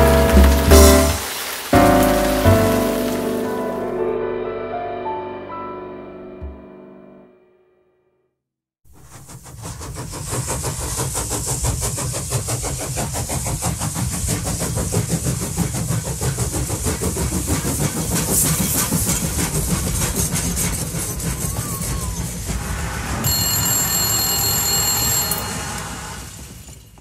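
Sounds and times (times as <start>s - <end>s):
train chugging: 9.0s - 27.0s
train hiss: 9.0s - 27.0s.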